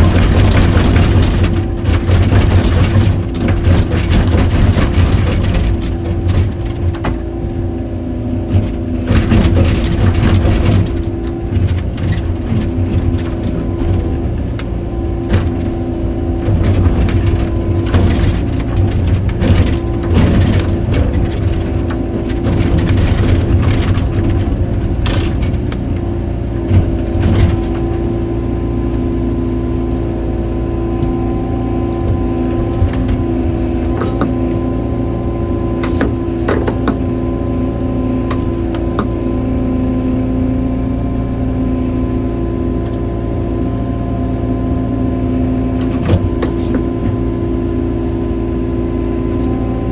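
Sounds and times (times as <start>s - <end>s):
loud knocks and cracks: 0.0s - 7.4s, 8.5s - 29.6s
excavator diesel engine running: 0.0s - 49.9s.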